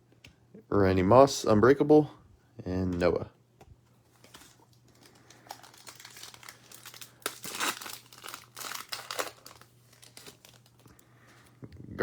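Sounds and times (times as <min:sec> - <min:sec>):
card pack wrapper crinkling: 0:04.1 - 0:11.0.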